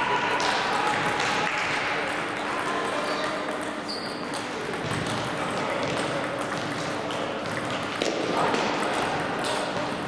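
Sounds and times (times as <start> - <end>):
table tennis balls clicking: 2.1 - 10.0.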